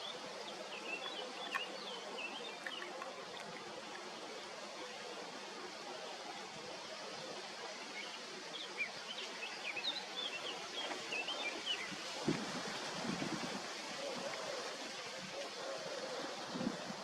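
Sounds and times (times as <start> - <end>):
small birds chirping: 0.0 - 4.1
steady outdoor hiss: 0.0 - 17.0.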